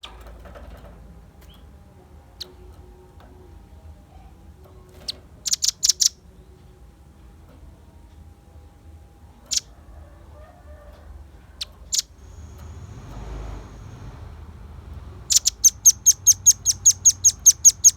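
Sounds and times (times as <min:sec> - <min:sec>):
low hum: 0:12.1 - 0:17.4
bird chipping calls: 0:15.2 - 0:17.9.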